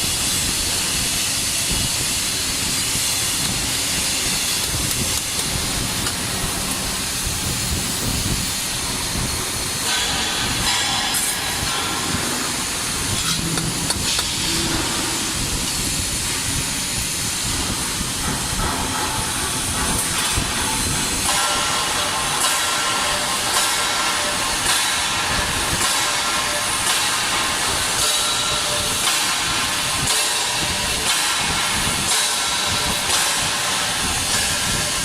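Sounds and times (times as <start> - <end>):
welder hissing: 0.0 - 35.0.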